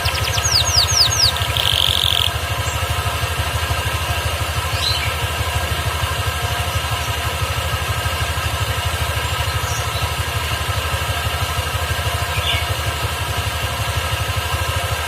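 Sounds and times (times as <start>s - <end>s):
canary chirps: 0.0s - 2.8s
engine idling: 0.0s - 15.0s.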